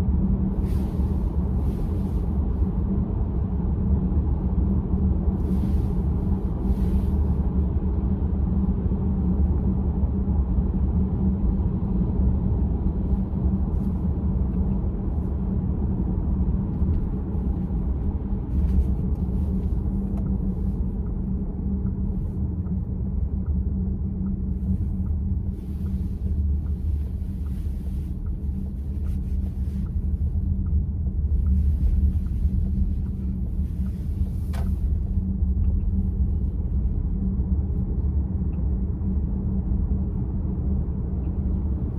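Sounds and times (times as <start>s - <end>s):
road and tyre rumble: 0.0s - 41.9s.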